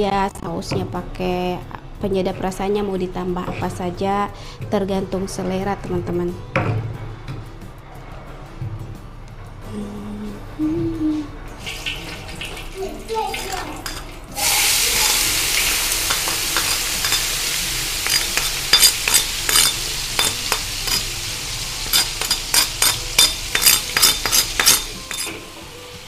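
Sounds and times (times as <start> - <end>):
food sizzling in oil: 11.6 - 26.0
metal spatula scraping wok: 13.8 - 25.6.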